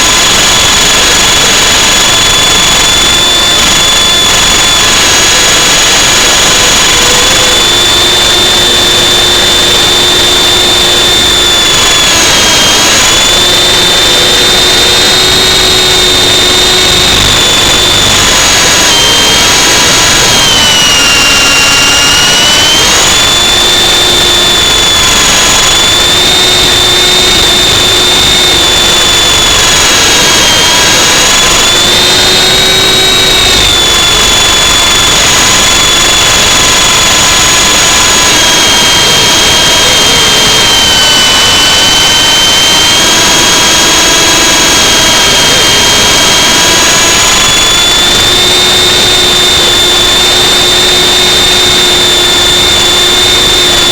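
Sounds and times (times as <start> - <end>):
model aircraft motor whine: 0.0 - 53.9.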